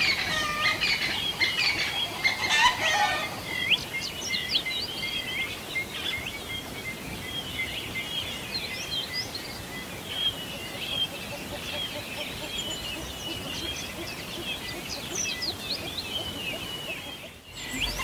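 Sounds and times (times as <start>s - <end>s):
low-pitched fowl calls: 0.0s - 3.4s
songbirds chirping and whistling: 0.0s - 18.0s.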